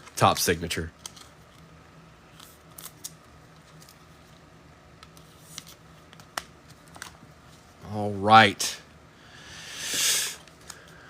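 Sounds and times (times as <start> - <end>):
low steady hum: 0.0 - 11.0
cards and packaging crinkling: 2.3 - 4.1.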